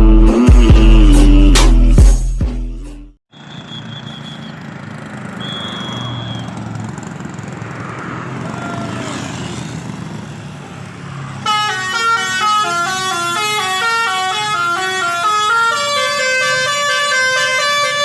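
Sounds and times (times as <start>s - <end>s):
melodic bus horn: 11.4s - 18.0s.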